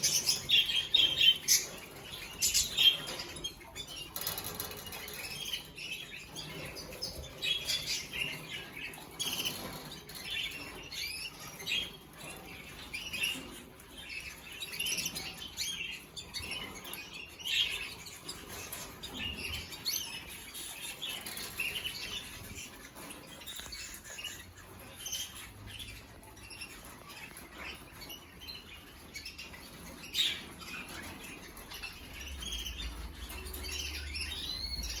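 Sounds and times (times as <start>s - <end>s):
canaries chirping: 0.0s - 35.0s.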